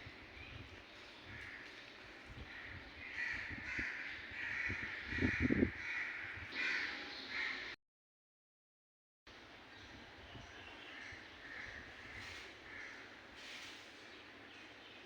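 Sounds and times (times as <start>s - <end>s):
birds harsh calls: 0.0s - 7.8s, 10.3s - 15.0s.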